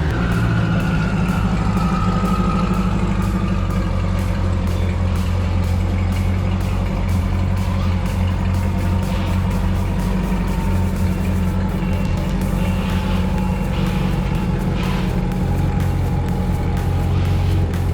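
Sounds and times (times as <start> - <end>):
background music with a beat: 0.0 - 17.9
truck engine idling: 0.0 - 17.9.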